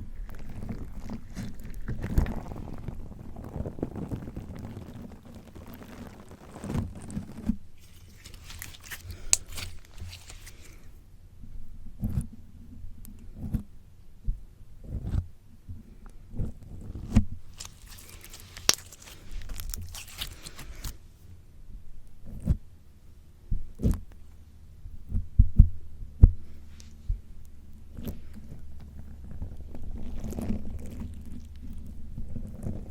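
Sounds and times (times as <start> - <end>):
slime squishing: 0.0 - 10.9, 16.9 - 21.2, 27.7 - 32.9.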